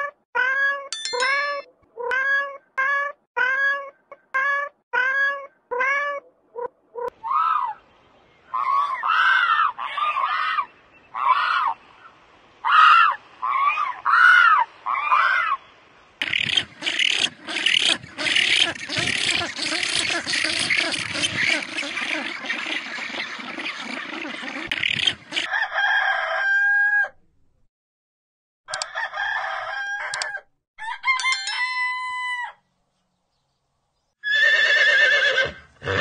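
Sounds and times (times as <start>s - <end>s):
higher rising and falling calls: 34.2s - 36.0s.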